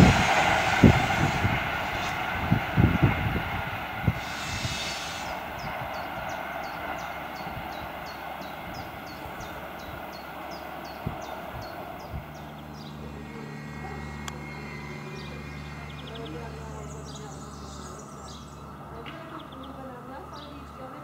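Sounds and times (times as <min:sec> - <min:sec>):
electric locomotive hum: 0:00.0 - 0:21.0
train rolling rumble: 0:00.0 - 0:21.0
bird chirping: 0:05.6 - 0:21.0.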